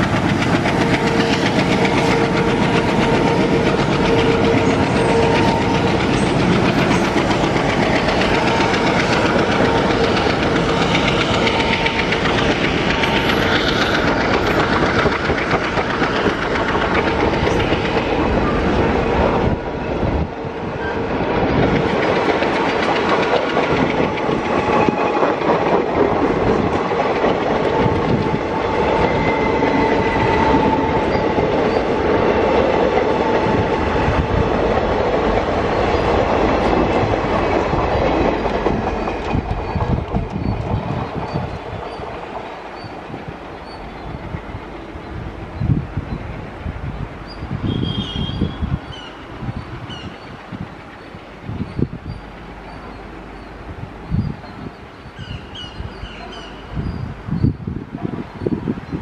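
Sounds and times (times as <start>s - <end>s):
train coaches rushing past: 0.0s - 59.0s.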